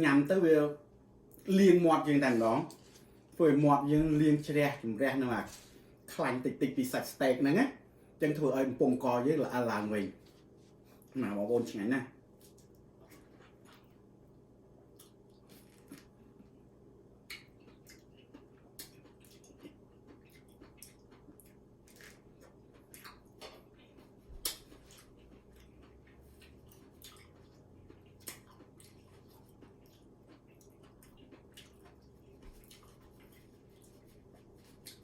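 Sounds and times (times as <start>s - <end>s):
person eating with soft smacks: 2.3s - 3.4s, 12.3s - 35.0s.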